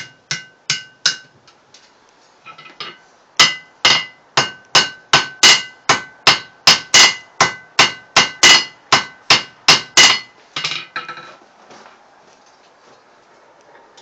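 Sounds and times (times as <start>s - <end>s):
hammer striking metal on anvil: 0.0s - 1.3s, 2.5s - 11.0s.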